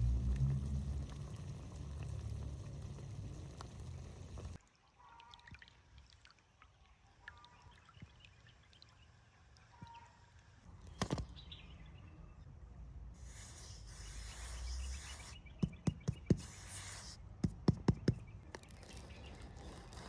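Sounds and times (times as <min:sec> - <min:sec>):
low rumbling noise: 0:00.0 - 0:04.6.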